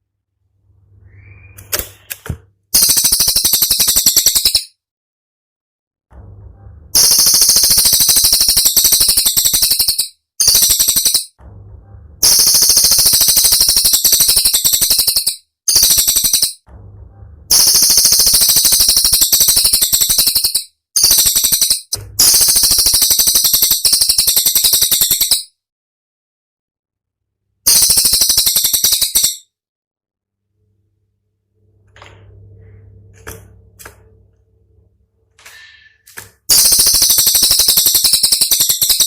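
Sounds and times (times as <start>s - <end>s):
rapid high-pitched bird song: 0.9s - 2.1s, 2.8s - 4.8s, 7.0s - 11.4s, 12.2s - 16.6s, 17.5s - 25.6s, 27.6s - 29.5s, 36.5s - 39.0s.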